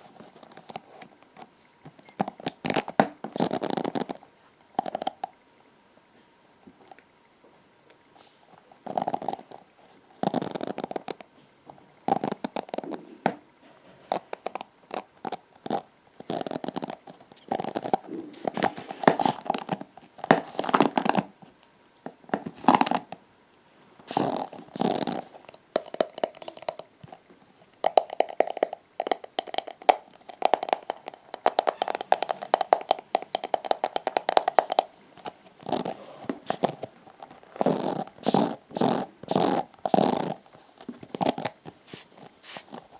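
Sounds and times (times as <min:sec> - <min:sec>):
hairbrush bristles scraping: 0:41.9 - 0:42.7.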